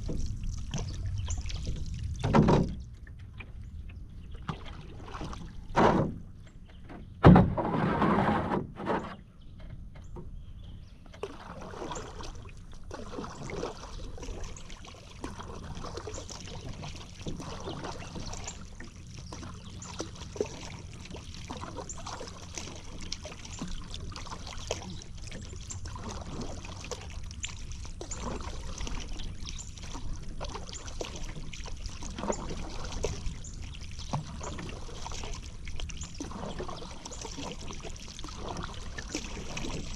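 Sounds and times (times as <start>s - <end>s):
water dripping off paddle: 0.0s - 6.1s, 11.1s - 39.9s
paddle strokes in water: 0.0s - 39.9s.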